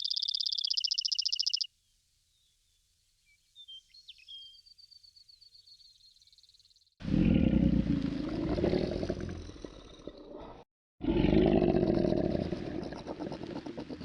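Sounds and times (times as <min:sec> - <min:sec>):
big cat roaring: 0:07.0 - 0:14.0.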